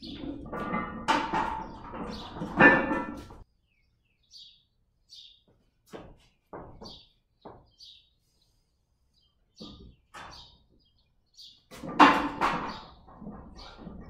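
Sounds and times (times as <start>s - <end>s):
small birds chirping: 1.6s - 2.5s, 3.4s - 11.9s.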